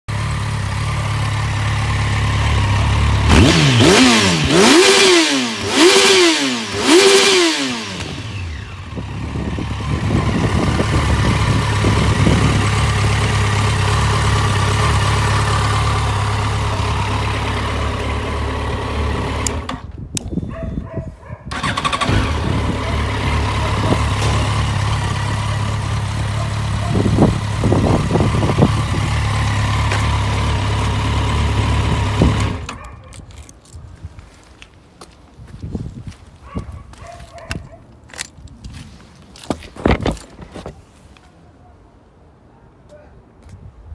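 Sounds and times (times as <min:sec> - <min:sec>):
motorcycle engine revving and idling: 0:00.1 - 0:19.9, 0:21.5 - 0:32.9.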